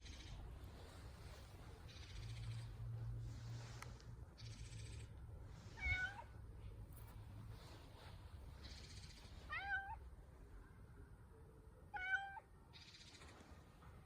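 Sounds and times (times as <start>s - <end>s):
cat meowing: 5.8s - 6.3s, 8.8s - 10.0s, 11.9s - 12.5s.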